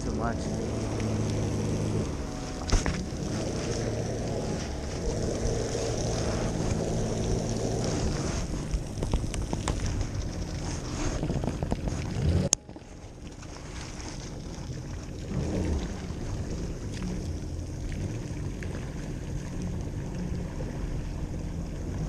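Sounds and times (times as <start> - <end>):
jet ski engine running: 0.0 - 22.0
wind buffeting microphone: 0.0 - 22.0.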